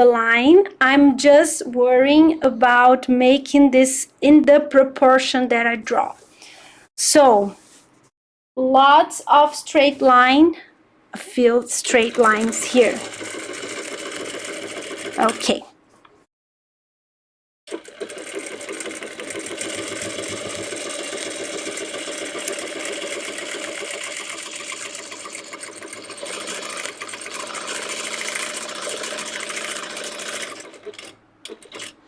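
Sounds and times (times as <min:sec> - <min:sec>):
sewing machine stitching rapidly: 0:11.8 - 0:15.6, 0:17.7 - 0:32.0.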